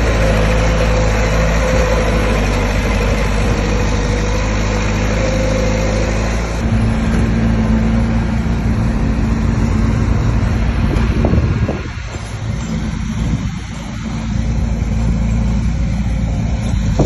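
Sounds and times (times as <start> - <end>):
bulldozer diesel engine working: 0.0 - 17.0.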